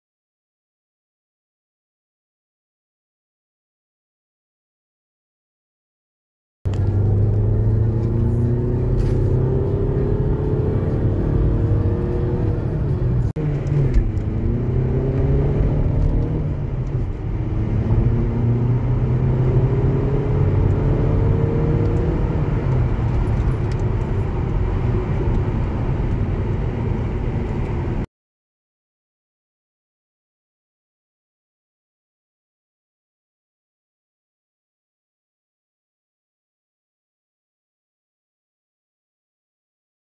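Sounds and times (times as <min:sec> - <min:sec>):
diesel engine accelerating: 0:06.7 - 0:28.1
road and tyre noise: 0:06.7 - 0:28.1.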